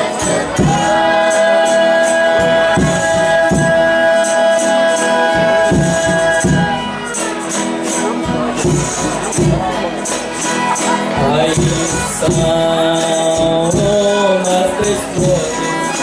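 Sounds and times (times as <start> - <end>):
band playing: 0.0 - 16.0
steady drum beat: 0.0 - 16.0
tambourine jingles: 0.0 - 16.0
voices holding a sung note: 0.0 - 16.0.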